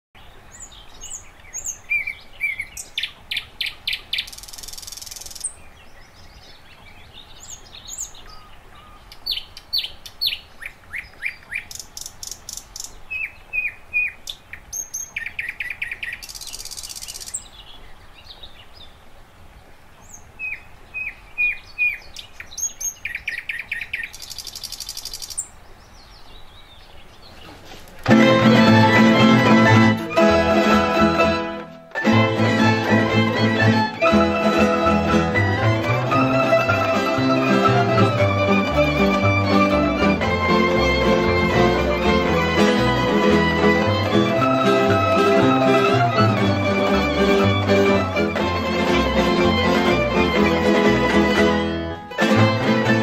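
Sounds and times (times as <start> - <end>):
birds chirping and singing: 0.2 - 19.0, 20.0 - 27.9
faint steady background hiss: 0.2 - 53.0
string band with fiddles: 27.5 - 53.0.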